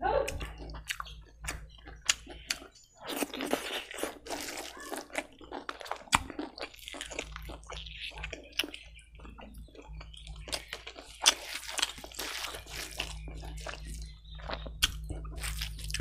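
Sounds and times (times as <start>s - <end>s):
close chewing mouth noises: 0.3s - 16.0s.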